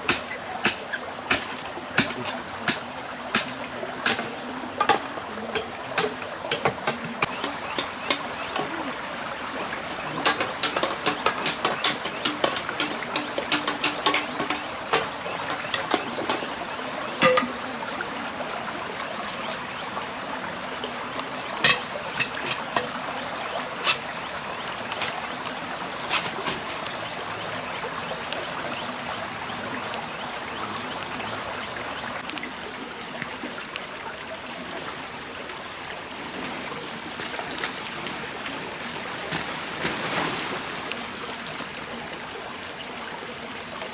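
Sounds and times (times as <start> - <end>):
stream water running: 0.0 - 43.9
sharp clicks and knocks: 3.4 - 8.8, 9.9 - 16.6.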